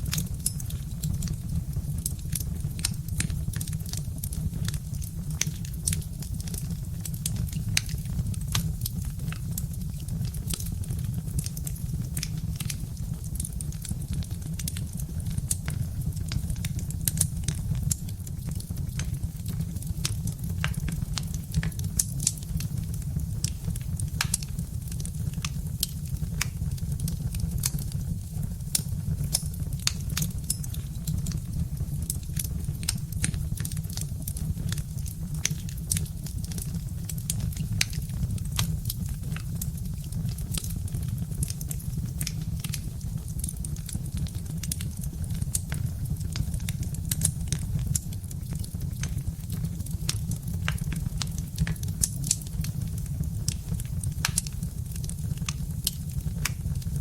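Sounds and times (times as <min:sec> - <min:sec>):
wood fire crackling: 0:00.0 - 0:57.0
sharp pops and snaps: 0:00.1 - 0:57.0.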